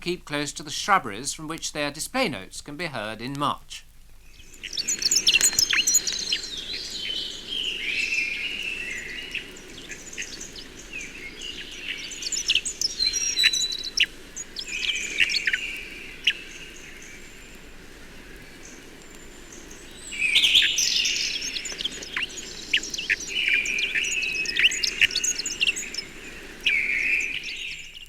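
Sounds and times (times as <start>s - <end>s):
low background hiss: 0.0s - 28.0s
sparrows chirping: 0.0s - 28.0s.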